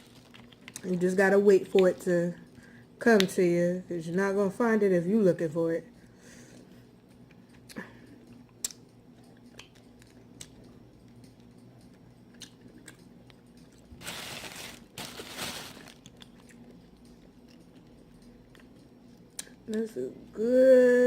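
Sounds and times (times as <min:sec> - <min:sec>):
person chewing with clicks: 0:00.2 - 0:00.9, 0:07.0 - 0:13.9, 0:16.0 - 0:19.8.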